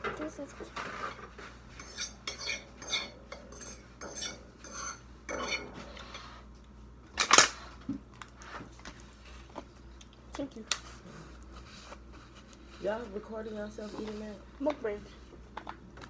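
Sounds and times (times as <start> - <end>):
cutlery and dishes clinking: 1.8 - 6.2, 7.2 - 7.6.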